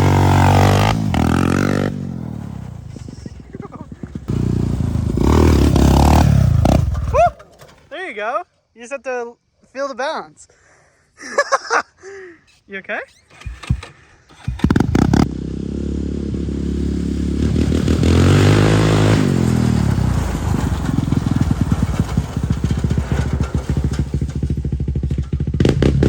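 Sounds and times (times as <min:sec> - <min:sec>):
quad engine revving: 0:00.0 - 0:07.4, 0:13.3 - 0:26.0
quad engine starting and idling: 0:00.0 - 0:07.9, 0:13.1 - 0:26.0.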